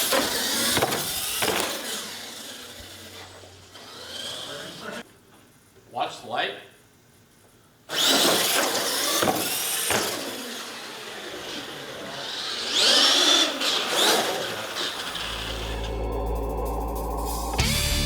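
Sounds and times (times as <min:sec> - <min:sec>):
rc truck motors whining: 0:00.0 - 0:05.0, 0:07.9 - 0:16.9.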